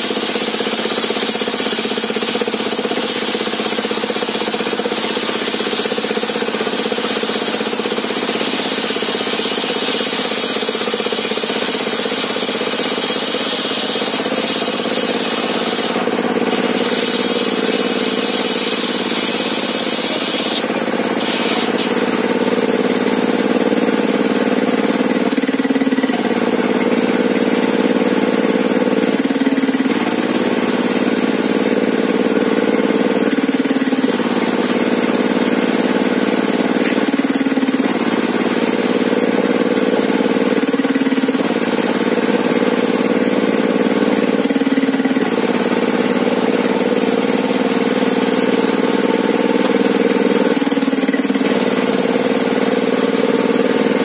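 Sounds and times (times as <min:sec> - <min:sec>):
table saw drive running: 0:02.0 - 0:22.8.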